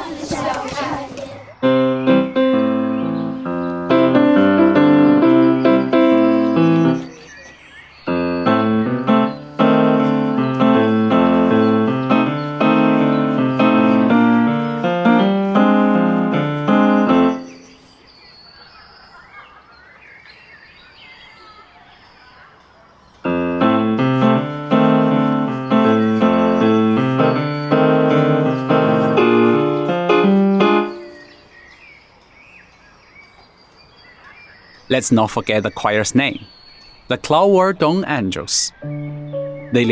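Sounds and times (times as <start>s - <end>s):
faint birdsong: 0.0s - 39.9s
piano playing chords and melody: 1.6s - 7.3s, 8.1s - 17.9s, 23.2s - 31.5s, 38.7s - 39.9s.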